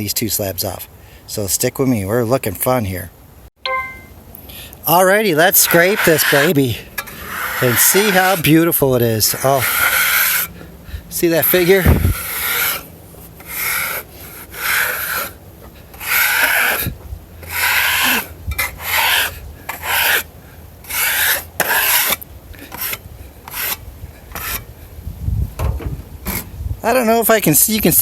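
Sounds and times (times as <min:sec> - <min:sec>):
scraper rasping across wood: 0:05.4 - 0:10.7, 0:11.3 - 0:24.7.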